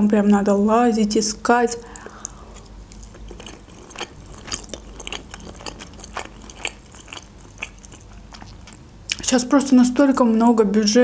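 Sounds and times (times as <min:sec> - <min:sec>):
person chewing food: 0:01.8 - 0:09.2.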